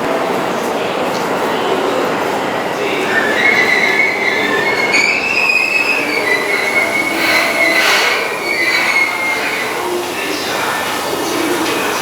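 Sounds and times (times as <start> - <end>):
train cars rumbling: 0.0 - 12.0
train wheels squealing: 2.7 - 11.9.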